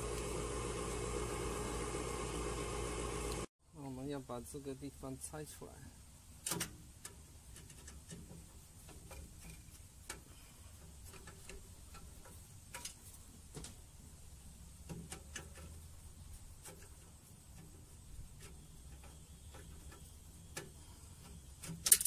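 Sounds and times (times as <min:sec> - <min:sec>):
hand tools clicking and tapping metal: 0:06.4 - 0:13.8, 0:14.8 - 0:15.8, 0:16.6 - 0:22.0.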